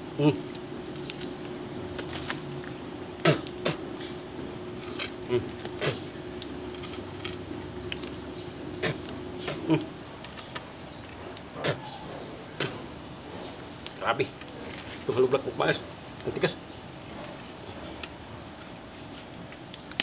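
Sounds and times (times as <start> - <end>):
man crunching with his teeth: 0.0 - 11.9, 17.0 - 20.0
steady low hum: 0.0 - 20.0
man grunting: 9.6 - 9.9.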